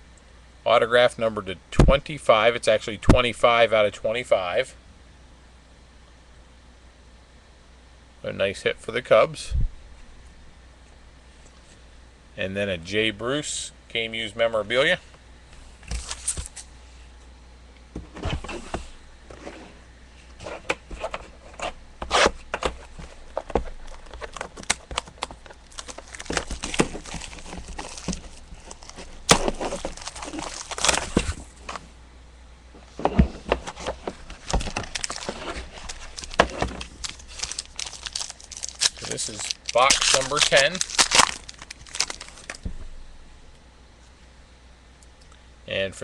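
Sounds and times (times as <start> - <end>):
plastic wrap crinkling and tearing: 23.6 - 31.6, 33.8 - 42.6.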